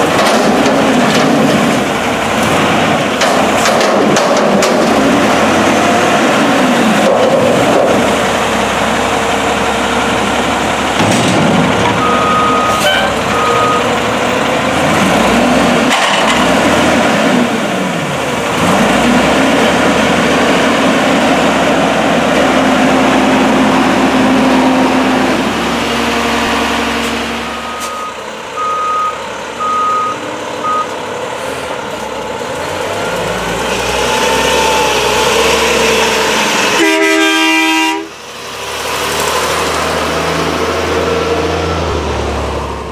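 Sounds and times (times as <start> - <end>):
truck engine revving: 0.0 - 42.9
backup alarm beeps: 12.0 - 13.9, 27.4 - 31.0.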